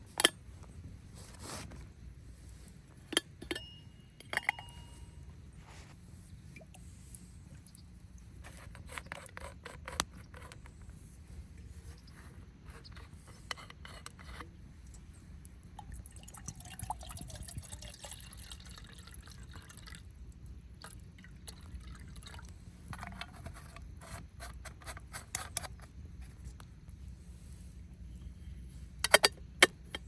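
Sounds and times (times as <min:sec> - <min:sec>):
liquid pouring into container: 0:15.8 - 0:20.1, 0:20.8 - 0:22.5.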